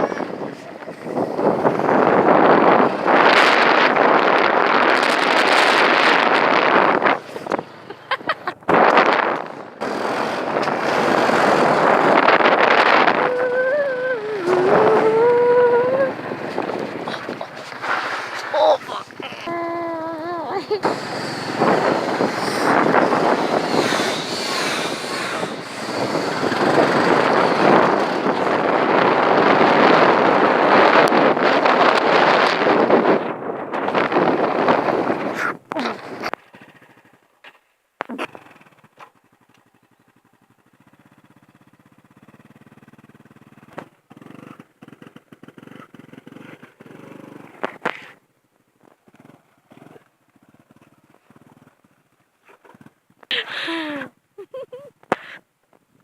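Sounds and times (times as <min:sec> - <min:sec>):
wind buffeting microphone: 0:00.0 - 0:37.1
motorbike running: 0:00.0 - 0:56.0.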